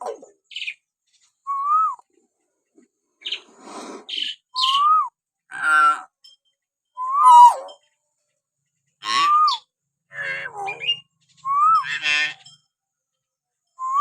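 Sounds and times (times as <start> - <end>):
myna bird whistles and calls: 4.1 - 5.2, 7.0 - 7.7, 9.1 - 9.7, 10.6 - 12.0.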